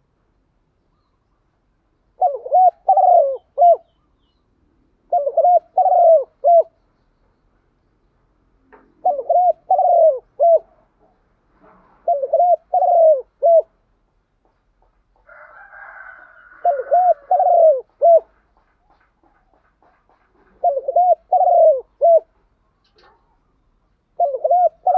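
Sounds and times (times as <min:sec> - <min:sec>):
dove cooing: 0:02.2 - 0:04.0, 0:05.0 - 0:06.8, 0:08.8 - 0:11.2, 0:12.0 - 0:13.8, 0:15.3 - 0:19.0, 0:20.4 - 0:24.9.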